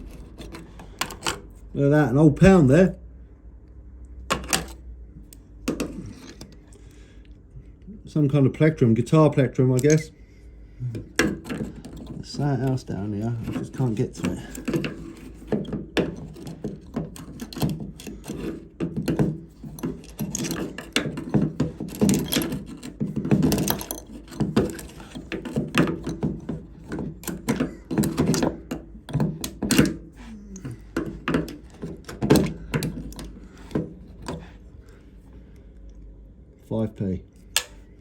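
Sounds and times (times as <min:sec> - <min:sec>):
knocks clicks and scraping in pump: 0:00.0 - 0:01.6, 0:10.9 - 0:35.0.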